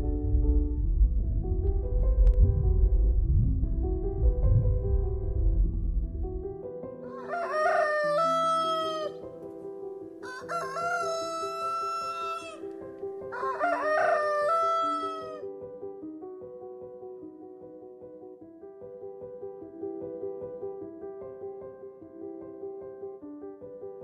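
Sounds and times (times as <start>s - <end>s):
low rumble: 0.0s - 6.6s
soft background music: 0.0s - 24.0s
rooster crowing: 7.0s - 9.2s, 10.2s - 12.7s, 13.3s - 15.4s.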